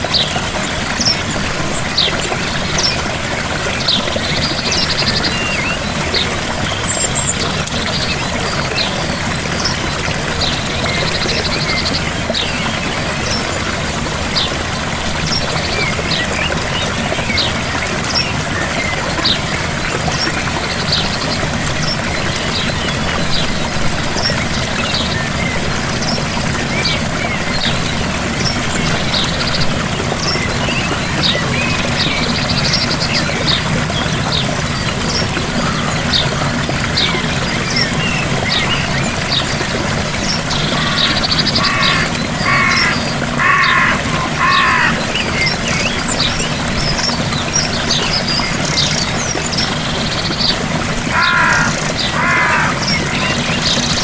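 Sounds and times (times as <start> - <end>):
waterfall rushing: 0.0 - 54.0
small birds chirping: 40.2 - 54.0.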